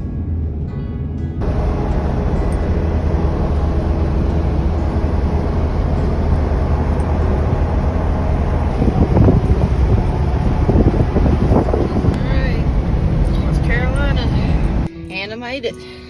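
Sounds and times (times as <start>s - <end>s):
car engine and tyre rumble: 0.0s - 14.9s.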